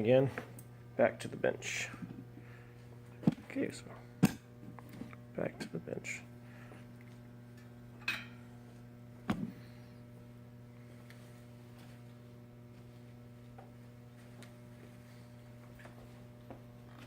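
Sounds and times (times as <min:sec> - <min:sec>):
steady electrical hum: 0:00.0 - 0:17.0
object set down on workbench: 0:09.3 - 0:09.6.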